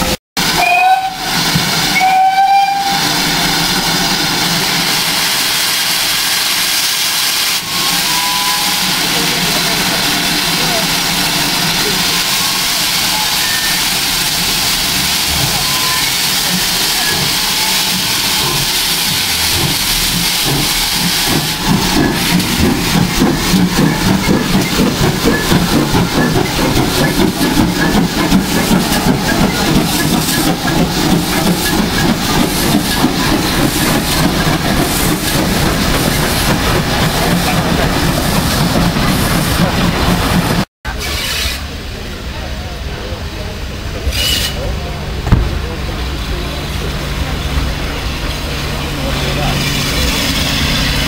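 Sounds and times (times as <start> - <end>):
steam hissing: 0.4 - 41.8
locomotive exhaust beats: 7.6 - 40.7.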